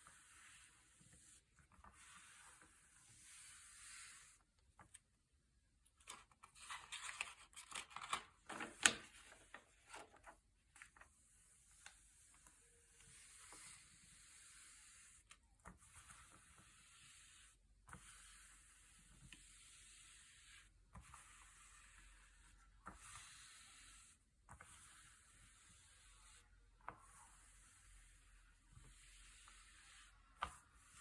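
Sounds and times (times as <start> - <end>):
paper pages rustling: 6.0 - 11.0.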